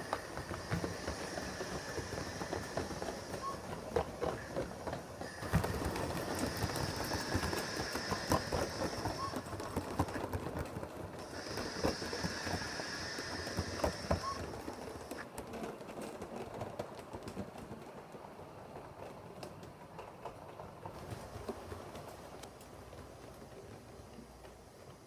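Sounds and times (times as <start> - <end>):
model train wheels clicking: 0.0 - 25.0.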